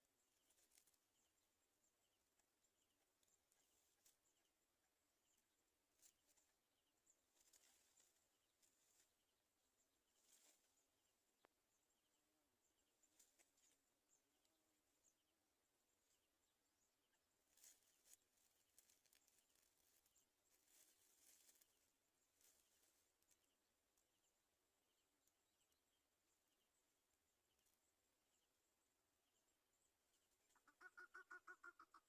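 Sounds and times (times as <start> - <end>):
faint rustles and clicks: 0.2 - 1.3, 5.3 - 9.3, 10.0 - 11.6, 13.0 - 14.6, 17.4 - 24.1.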